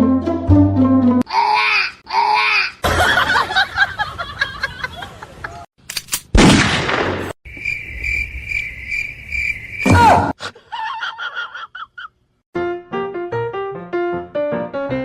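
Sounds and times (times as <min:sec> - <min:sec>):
pulsing cricket-like chirp: 0:07.5 - 0:10.2.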